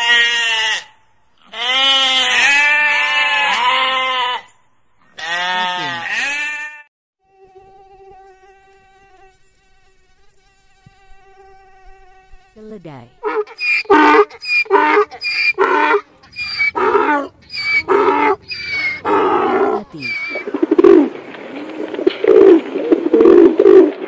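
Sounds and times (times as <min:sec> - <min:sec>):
sheep bleating: 0:00.0 - 0:04.5, 0:05.1 - 0:06.9, 0:13.0 - 0:20.4.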